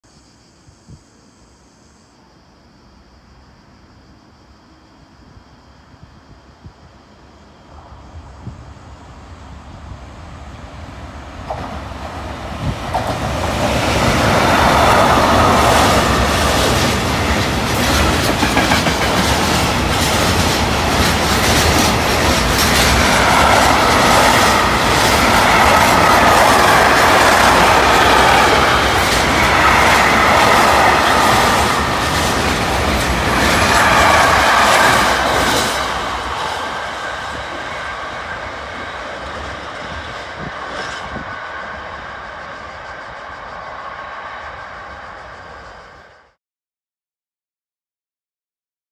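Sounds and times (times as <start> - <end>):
freight train rolling rumble: 4.7 - 46.4
wheels clickety-clack over rail joints: 11.3 - 43.9.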